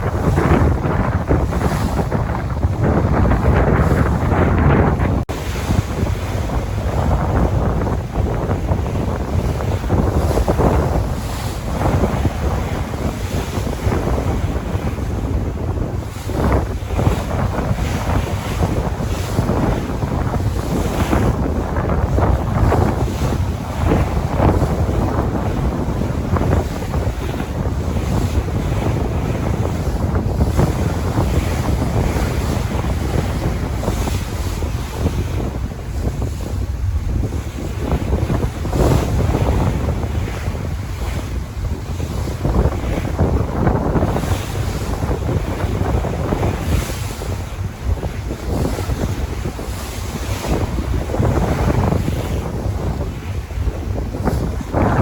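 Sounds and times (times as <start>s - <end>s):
sea waves washing in: 0.0s - 55.0s
wind buffeting the microphone: 0.0s - 55.0s.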